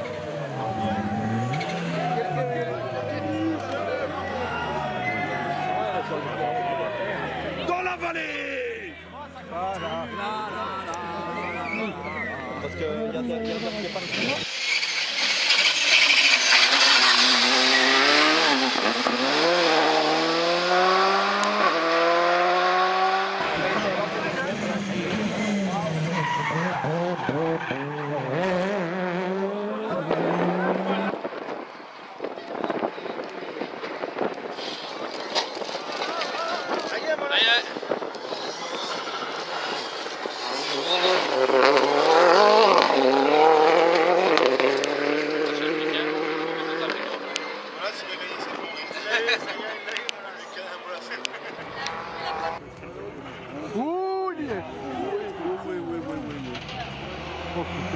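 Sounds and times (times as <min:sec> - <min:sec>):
rally car engine revving: 0:00.0 - 0:05.6, 0:13.2 - 0:31.5, 0:37.6 - 0:47.8, 0:55.3 - 0:57.9.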